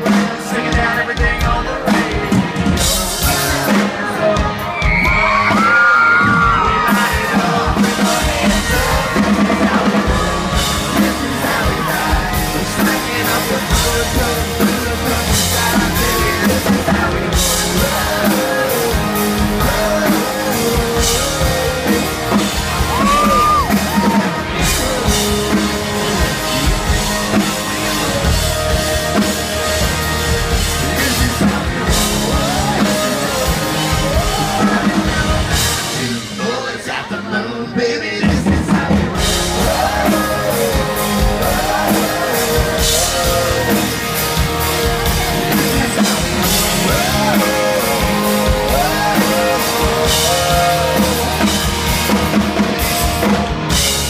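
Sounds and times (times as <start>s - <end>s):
live band playing country-rock: 0.0s - 54.0s
person singing: 0.0s - 54.0s.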